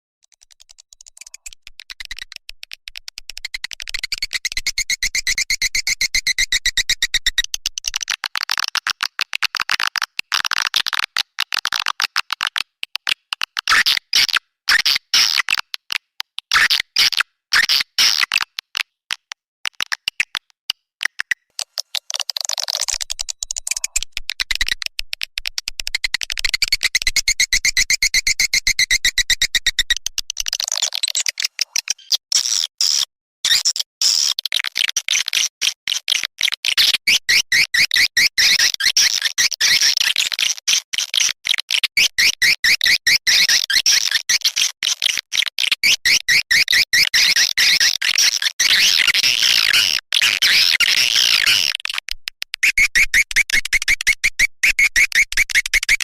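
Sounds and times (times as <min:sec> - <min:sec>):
swiftlets twittering chirps: 0:22.7 - 0:24.0.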